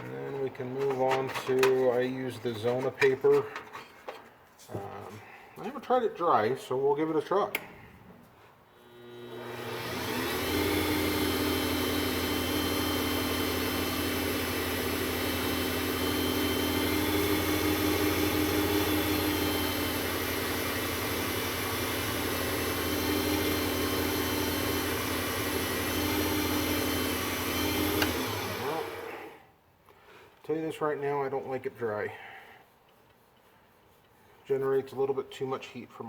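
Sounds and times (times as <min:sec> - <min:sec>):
sanding a spinning pen blank: 0:00.1 - 0:03.0, 0:32.6 - 0:35.0
wood lathe motor running: 0:08.9 - 0:29.4.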